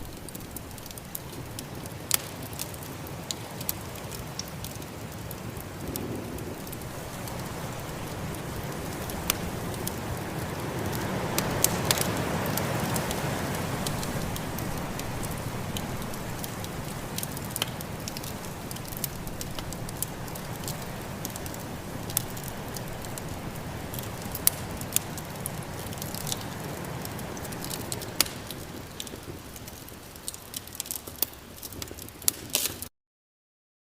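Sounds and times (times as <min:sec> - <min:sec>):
wood fire crackling and popping: 0:00.0 - 0:32.9
snowstorm wind rushing: 0:05.2 - 0:29.5.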